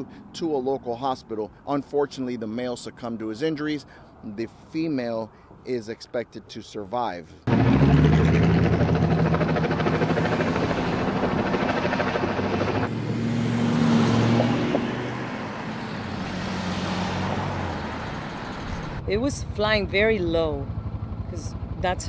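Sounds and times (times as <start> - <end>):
helicopter rotor drone: 7.5 - 22.0.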